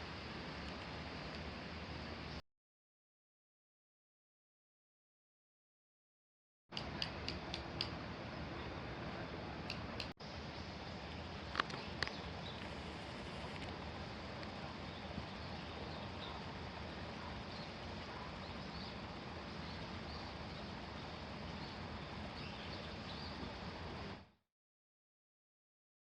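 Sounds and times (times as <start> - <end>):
outdoor background noise: 0.0 - 2.4, 6.7 - 24.4.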